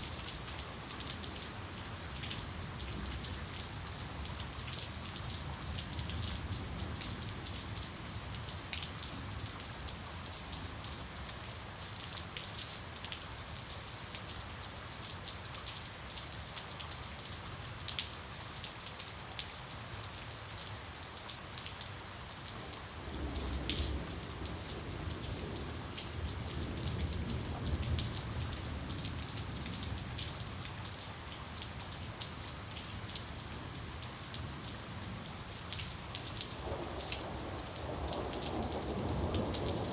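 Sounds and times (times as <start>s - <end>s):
steady rain falling: 0.0s - 39.9s
distant thunder rumble: 36.6s - 39.9s.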